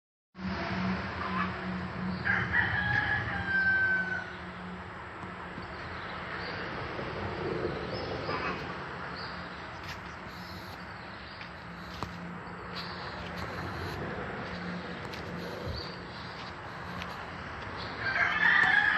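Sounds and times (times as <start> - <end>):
rooster crowing: 2.2 - 4.4, 18.0 - 18.9.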